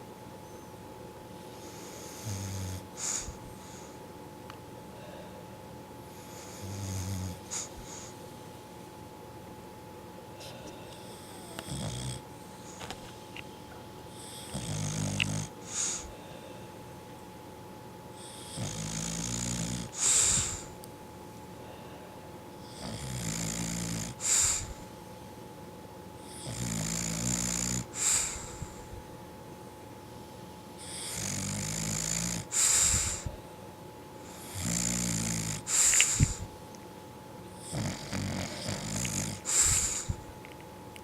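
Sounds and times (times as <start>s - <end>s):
dog snoring: 1.5s - 4.0s, 6.1s - 8.1s, 11.0s - 13.0s, 14.1s - 16.1s, 18.2s - 20.8s, 22.6s - 24.9s, 26.2s - 29.0s, 30.8s - 33.4s, 34.2s - 36.5s, 37.6s - 40.3s
hissing puff of breath: 15.6s - 16.4s, 20.0s - 20.8s, 24.2s - 24.8s, 32.5s - 33.4s, 35.7s - 36.5s, 39.4s - 40.2s.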